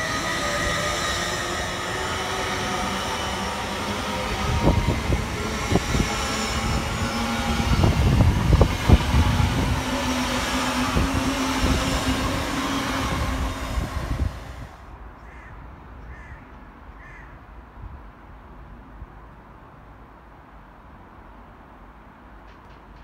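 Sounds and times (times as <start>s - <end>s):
high-speed train passing: 0.0s - 15.2s.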